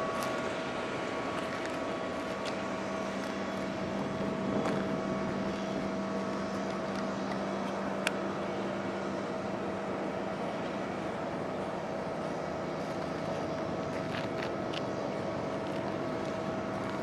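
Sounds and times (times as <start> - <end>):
train running: 0.0 - 17.0.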